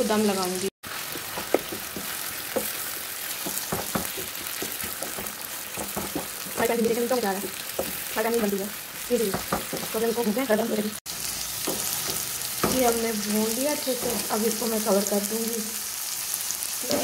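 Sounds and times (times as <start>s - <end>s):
food sizzling in oil: 0.0s - 17.0s
spatula stirring and scraping: 0.9s - 10.0s
spatula knocking against pan: 1.2s - 2.8s, 3.4s - 6.8s, 9.2s - 10.0s.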